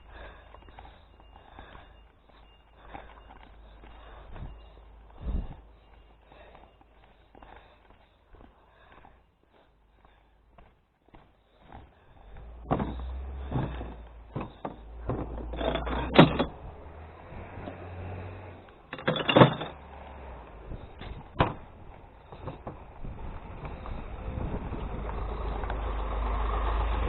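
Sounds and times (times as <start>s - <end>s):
truck engine running: 12.1s - 27.0s
sharp knocks and thuds: 12.6s - 16.6s, 21.0s - 21.7s.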